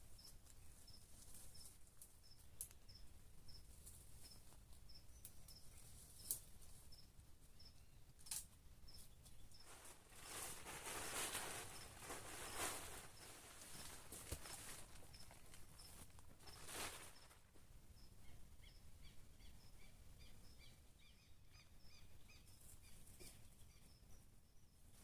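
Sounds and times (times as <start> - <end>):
rustling: 0.2 - 2.8, 9.2 - 17.6.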